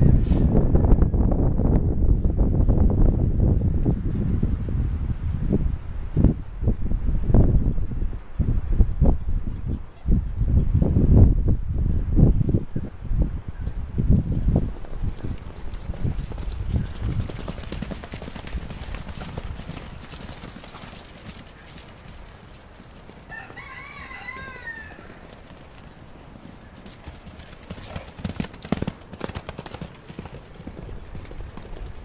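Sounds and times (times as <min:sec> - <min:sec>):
wind rumbling on microphone: 0:00.0 - 0:32.0
hooves thudding and clip-clopping: 0:14.5 - 0:32.0.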